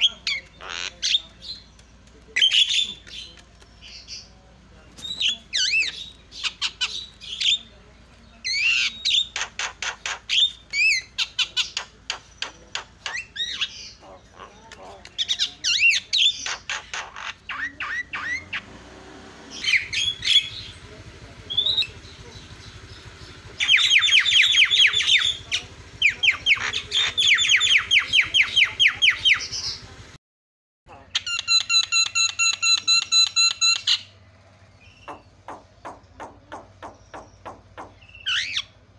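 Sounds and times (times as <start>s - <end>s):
birds squawking and chattering: 0.0s - 30.2s, 30.9s - 38.9s
high repeated bird notes: 19.5s - 20.8s, 21.5s - 29.9s, 31.0s - 34.2s, 34.8s - 38.8s.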